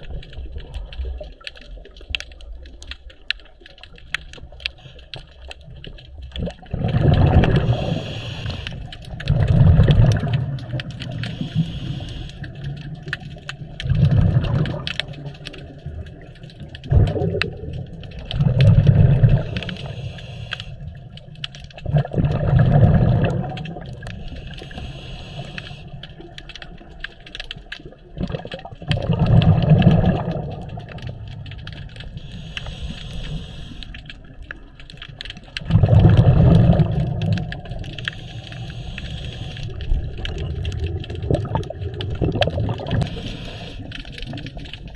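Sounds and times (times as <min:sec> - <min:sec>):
light crackle of clicks: 0:00.0 - 0:44.9
gurgling bubble bursts: 0:06.2 - 0:08.0, 0:09.1 - 0:11.4, 0:13.6 - 0:19.9, 0:21.8 - 0:24.3, 0:28.1 - 0:31.9, 0:35.6 - 0:38.0, 0:39.8 - 0:43.5.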